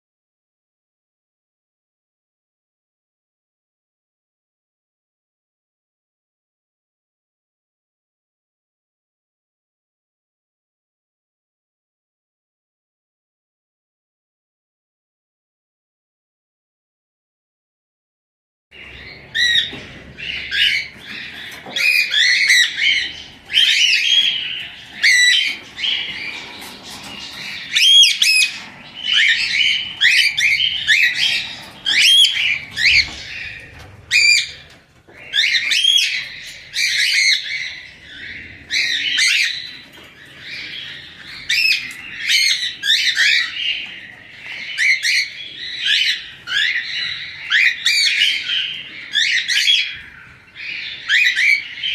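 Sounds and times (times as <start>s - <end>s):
parrots squawking and chirping: 18.8s - 51.9s.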